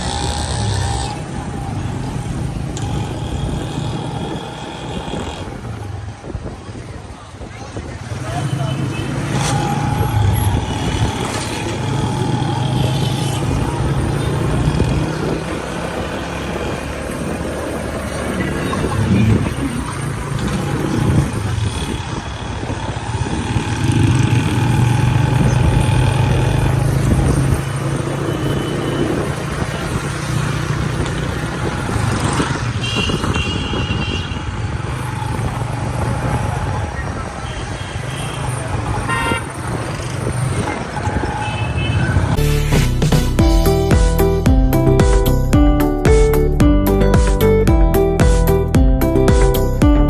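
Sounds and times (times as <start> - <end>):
motorcycle engine hum: 0.0 - 33.5
road and wind noise: 0.0 - 50.0.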